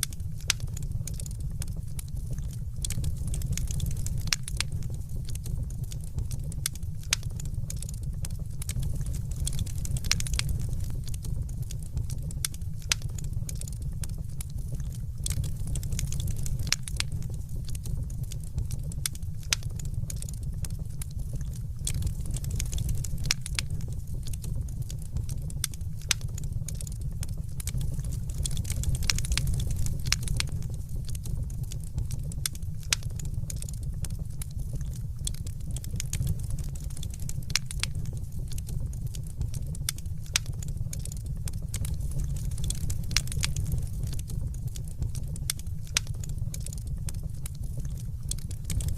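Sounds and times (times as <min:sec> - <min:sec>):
fire crackling and popping: 0:00.0 - 0:48.9.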